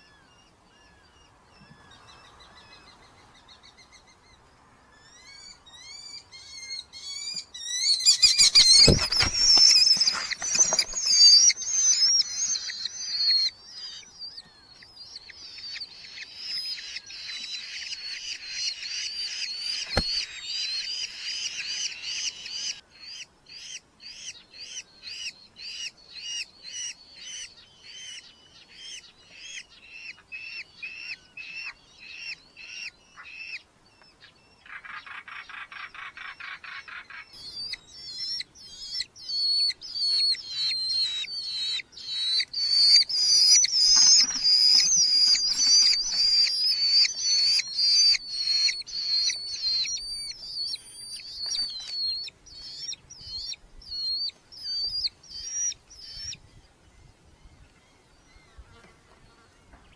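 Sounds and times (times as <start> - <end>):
falcons shrill calls: 34.7 - 55.7
buzzy bird chatter: 39.4 - 52.9.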